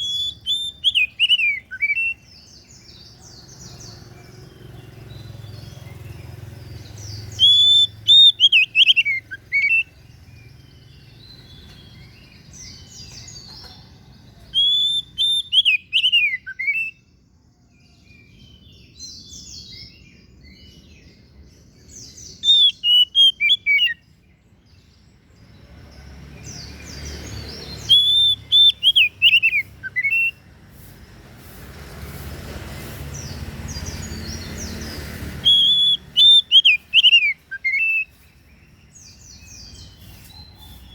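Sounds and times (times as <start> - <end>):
songbird whistling: 0.0 - 3.0, 6.9 - 10.1, 14.4 - 17.1, 22.0 - 24.1, 27.3 - 30.5, 33.7 - 40.9.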